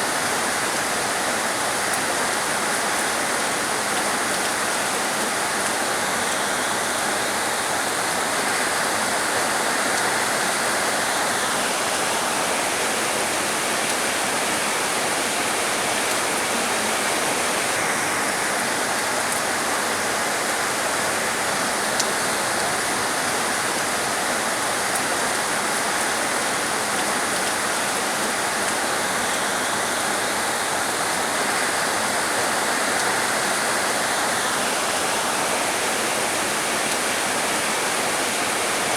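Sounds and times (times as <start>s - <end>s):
heavy rain hissing: 25.5s - 38.9s.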